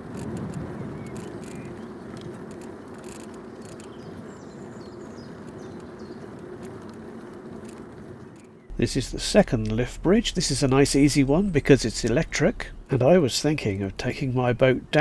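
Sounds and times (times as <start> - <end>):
bicycle rolling: 0.0 - 15.0
wind noise: 0.0 - 15.0
small birds chirping: 0.7 - 15.0.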